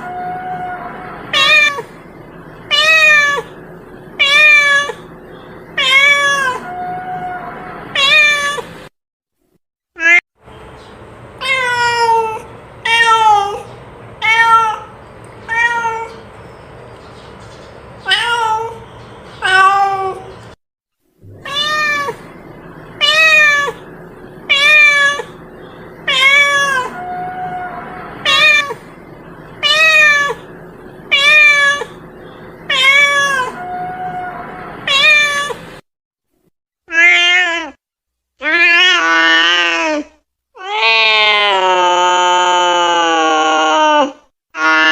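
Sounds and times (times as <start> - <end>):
cat meowing: 0.0 - 2.0, 2.7 - 3.5, 4.2 - 5.0, 5.8 - 8.7, 11.4 - 16.2, 18.1 - 18.8, 19.4 - 20.3, 21.3 - 22.3, 23.0 - 23.9, 24.5 - 25.4, 26.0 - 28.8, 29.6 - 30.5, 31.1 - 32.0, 32.7 - 35.6.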